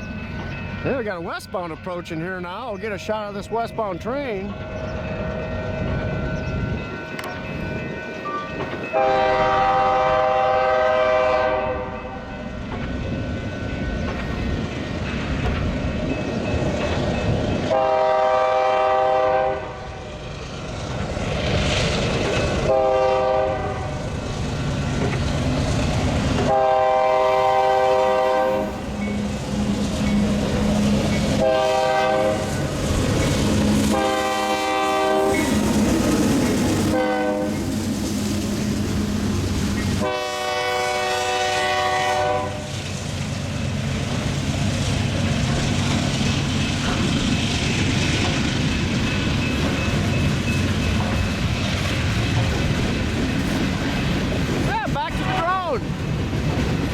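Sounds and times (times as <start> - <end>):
freight train rumble: 0.0 - 56.9
locomotive air horn blasts: 8.9 - 12.2, 17.7 - 20.0, 22.7 - 23.9, 26.5 - 28.8, 31.3 - 32.6, 33.8 - 35.5, 36.9 - 37.7, 40.0 - 42.7.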